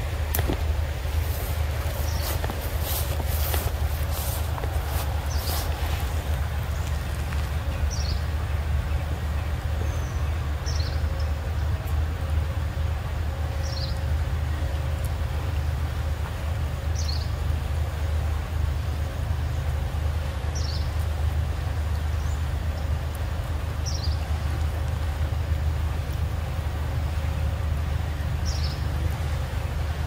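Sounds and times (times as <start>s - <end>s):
steady low rumble: 0.0s - 30.0s
bird chirping: 1.9s - 11.3s.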